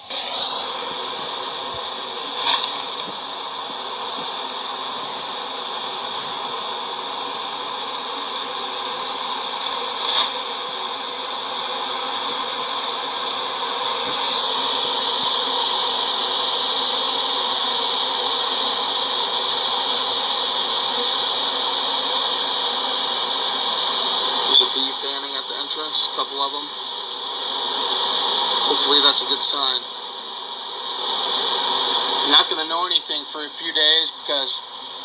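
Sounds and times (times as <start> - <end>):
bee swarm humming: 0.0 - 12.6, 13.6 - 18.8.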